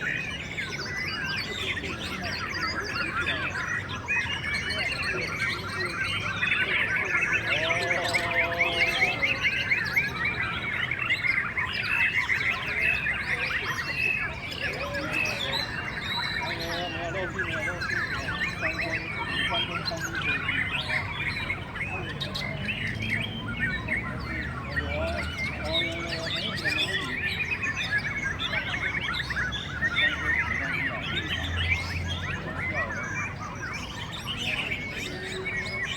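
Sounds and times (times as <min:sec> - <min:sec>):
birds whistling and chirping: 0:00.0 - 0:35.9
chorus of songbirds singing: 0:00.0 - 0:35.9.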